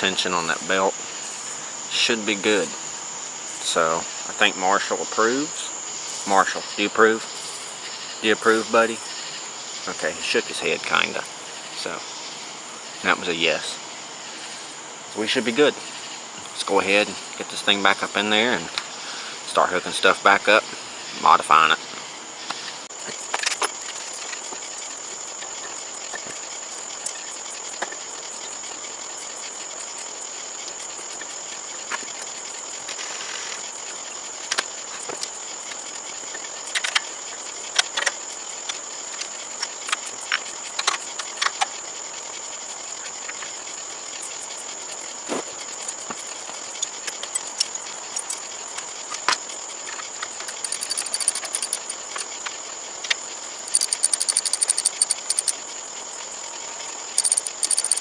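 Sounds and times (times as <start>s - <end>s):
high-pitched insect drone: 0.0s - 58.0s
clicks and clanks of hand tools: 49.1s - 52.3s, 57.2s - 58.0s
rattling: 50.3s - 52.1s, 53.7s - 55.5s, 57.2s - 58.0s.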